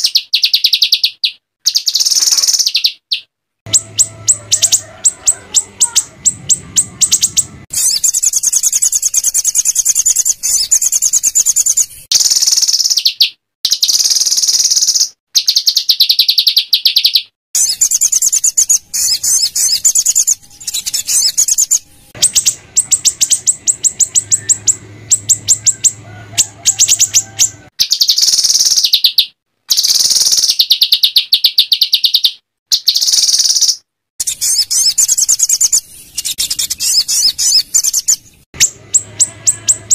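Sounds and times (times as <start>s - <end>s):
songbird chattering: 0.0s - 39.9s.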